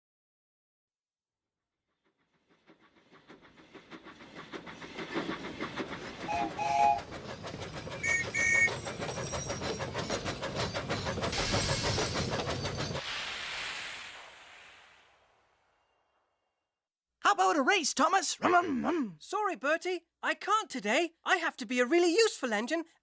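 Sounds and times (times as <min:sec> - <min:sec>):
steam locomotive chuffing: 0:01.9 - 0:14.5
steam hissing: 0:02.4 - 0:15.5
train whistle toots: 0:06.3 - 0:07.1, 0:08.0 - 0:08.7.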